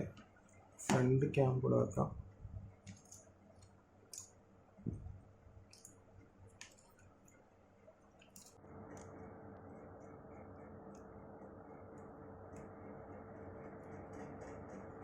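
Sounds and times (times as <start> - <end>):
small parts and tools clicking: 2.9 - 3.3, 5.7 - 7.4, 8.2 - 9.1.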